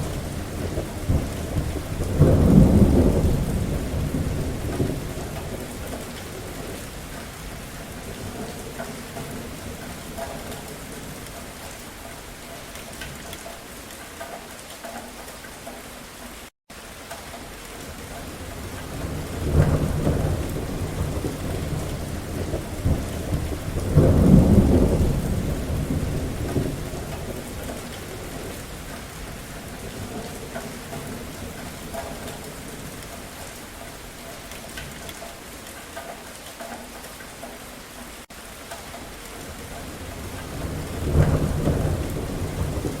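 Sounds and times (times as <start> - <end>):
thunder rumbling: 0.0 - 11.2, 17.9 - 33.4, 39.4 - 43.0
steady rain: 0.0 - 43.0.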